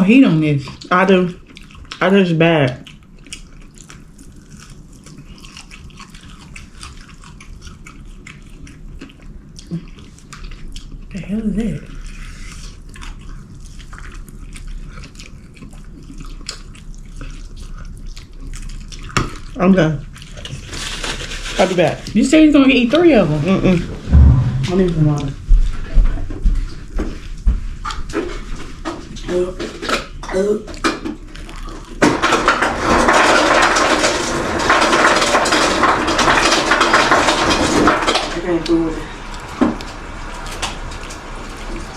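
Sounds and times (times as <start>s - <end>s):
wet chewing and mouth clicks: 0.6s - 20.7s, 26.5s - 32.0s
loud crunching and crackling: 31.4s - 41.9s.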